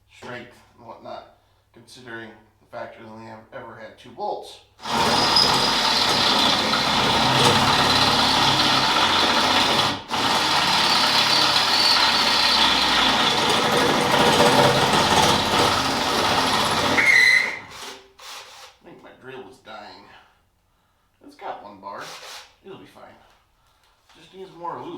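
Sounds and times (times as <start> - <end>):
cordless drill boring through steel: 4.8 - 18.7.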